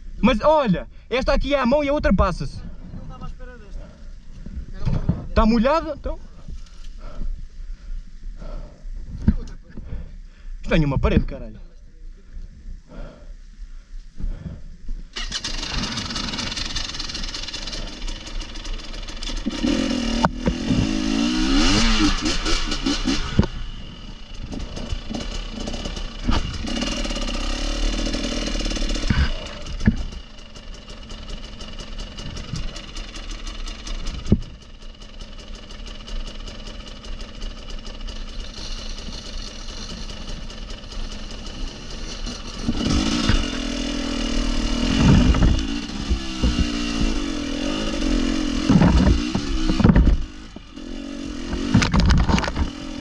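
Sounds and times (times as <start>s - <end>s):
off-road vehicle engine revving: 15.1s - 53.0s
vehicle knocking on stone: 48.7s - 50.2s.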